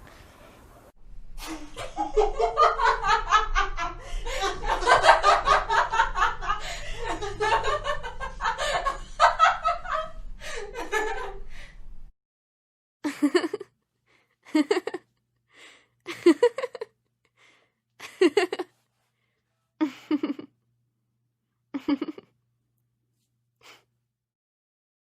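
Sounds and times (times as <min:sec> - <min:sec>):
woman laughing hard: 0:01.4 - 0:11.5, 0:13.0 - 0:13.7, 0:14.5 - 0:15.0, 0:16.1 - 0:16.9, 0:18.0 - 0:18.7, 0:19.8 - 0:20.5, 0:21.8 - 0:22.3
woman chuckling: 0:13.0 - 0:13.6, 0:14.5 - 0:15.0, 0:16.1 - 0:16.9, 0:18.0 - 0:18.7, 0:19.8 - 0:20.5, 0:21.7 - 0:22.3.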